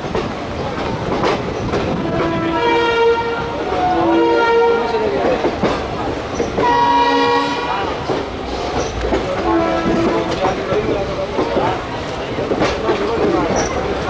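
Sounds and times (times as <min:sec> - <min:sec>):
train rumble and wheel clatter: 0:00.0 - 0:14.0
train horn blasts: 0:02.0 - 0:05.1, 0:06.6 - 0:08.0, 0:09.4 - 0:10.5.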